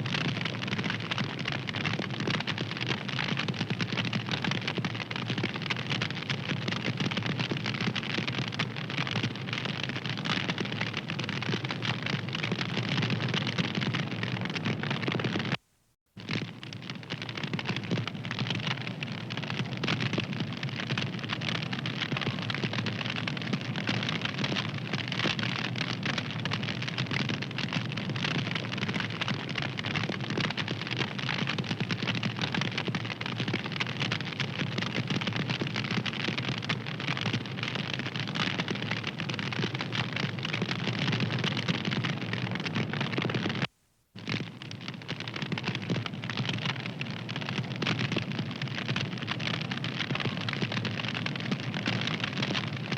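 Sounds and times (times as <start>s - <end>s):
wood fire crackling: 16.2s - 52.9s.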